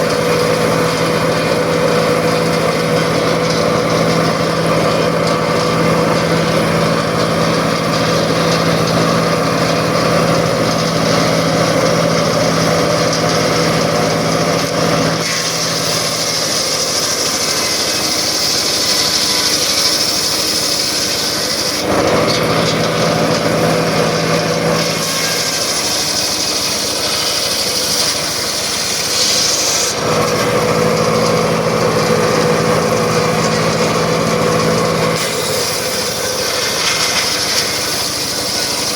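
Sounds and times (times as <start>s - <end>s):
circular saw running: 0.0s - 38.9s
saw cutting through wood: 0.0s - 38.9s.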